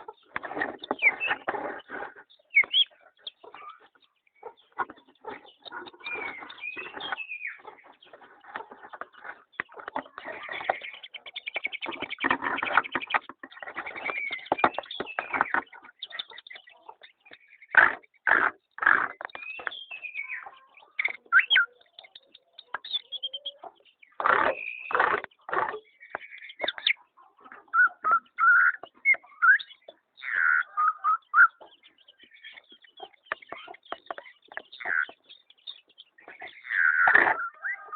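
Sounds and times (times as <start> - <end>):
birds chirping rapidly: 0.0 - 37.9
sliding whistled bird notes: 27.7 - 29.8.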